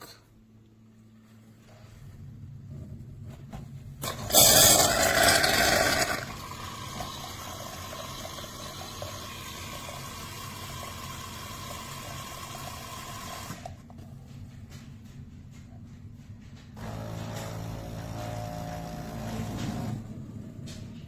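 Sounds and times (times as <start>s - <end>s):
milk frother hissing: 4.0s - 13.7s.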